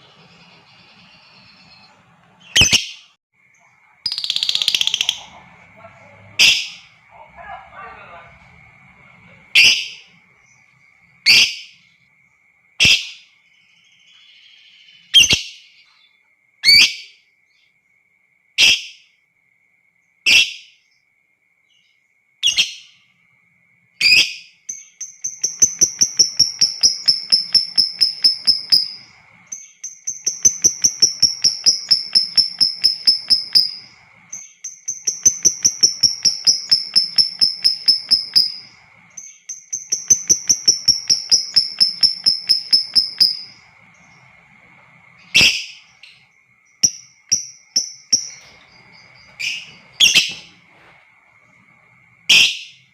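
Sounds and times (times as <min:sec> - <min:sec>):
lovebird rapid chattering trill: 0:00.0 - 0:03.0, 0:04.1 - 0:08.3, 0:09.4 - 0:10.3, 0:24.0 - 0:44.5, 0:45.1 - 0:50.4
lovebird shrill calls: 0:00.0 - 0:03.1, 0:04.1 - 0:05.4, 0:06.4 - 0:07.0, 0:09.5 - 0:10.1, 0:11.2 - 0:11.8, 0:14.2 - 0:15.6, 0:24.0 - 0:44.4, 0:45.2 - 0:46.2, 0:46.8 - 0:50.5, 0:52.3 - 0:52.8.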